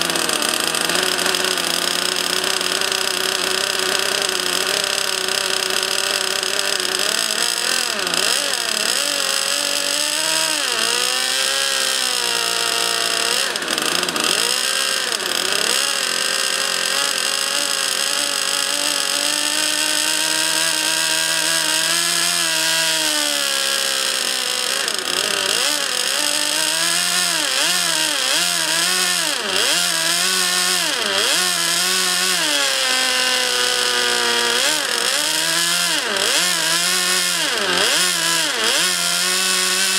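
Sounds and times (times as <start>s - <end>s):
model jet turbine whine: 0.0s - 10.7s, 12.7s - 14.4s, 23.8s - 26.5s.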